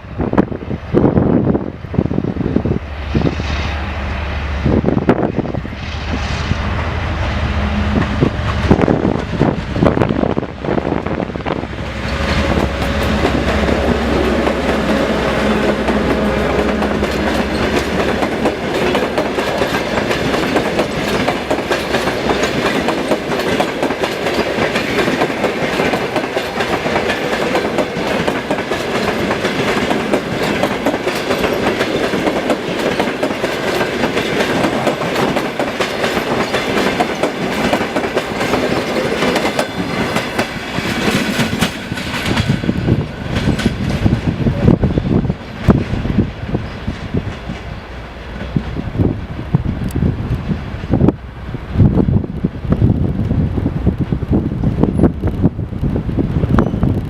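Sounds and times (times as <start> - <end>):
diesel locomotive engine drone: 0.0 - 57.0
train wheels clickety-clack: 7.8 - 51.2.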